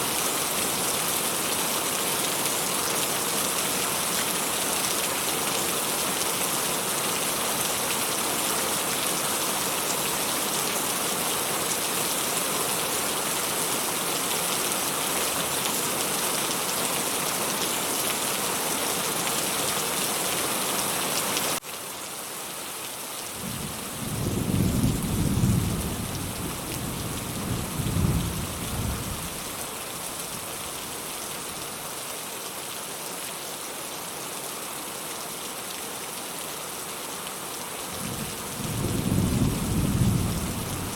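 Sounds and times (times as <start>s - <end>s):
heavy rain: 0.0s - 40.9s
distant thunder rumbling: 23.4s - 29.1s, 38.0s - 40.9s.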